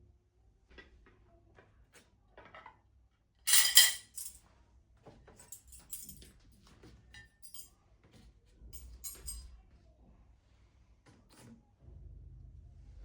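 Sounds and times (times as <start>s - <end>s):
clinking clatter: 3.5s - 4.4s, 5.4s - 6.3s, 7.2s - 7.7s, 8.8s - 9.5s.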